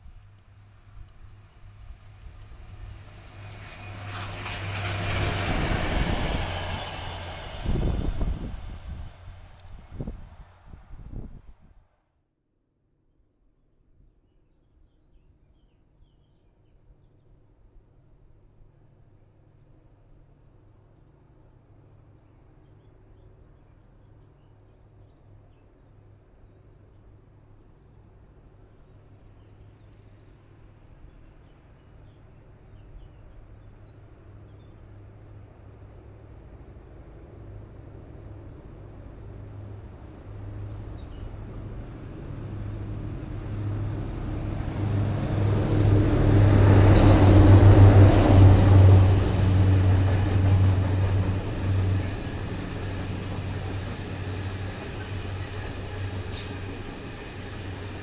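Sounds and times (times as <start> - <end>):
diesel locomotive engine drone: 0.3 - 11.6, 31.1 - 58.0
train wagons rumbling on rails: 1.6 - 10.4, 35.9 - 58.0.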